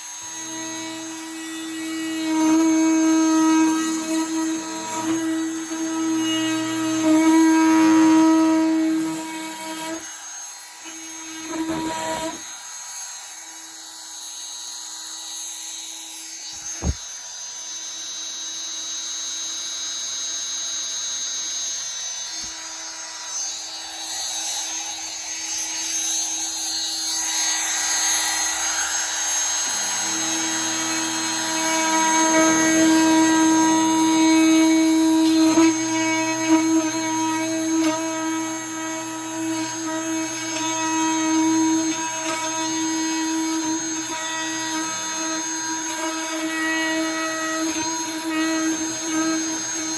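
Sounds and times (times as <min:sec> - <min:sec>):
oscillating multi-tool cutting plastic: 0:00.0 - 0:49.9
sharp knock: 0:16.6 - 0:17.0.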